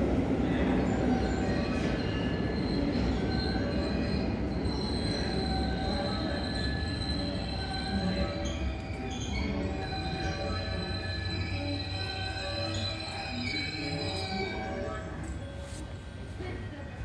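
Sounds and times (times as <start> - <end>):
train rumble: 0.0 - 17.0
high wheel squeal: 1.2 - 14.8.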